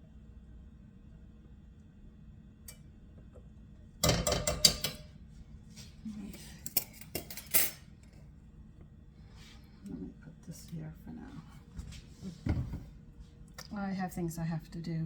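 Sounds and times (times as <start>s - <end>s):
metal utensils clattering: 6.7s - 7.8s.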